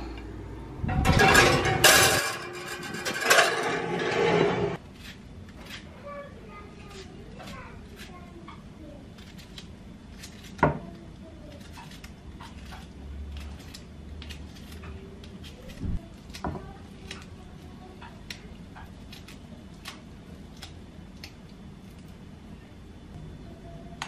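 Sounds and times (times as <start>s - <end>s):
dishes and utensils clicking: 1.0s - 4.0s.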